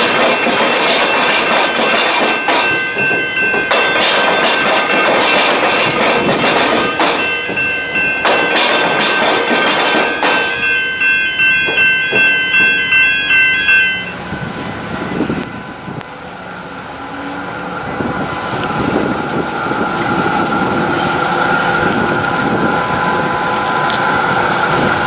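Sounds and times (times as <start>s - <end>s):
level crossing bells ringing: 0.0s - 15.5s.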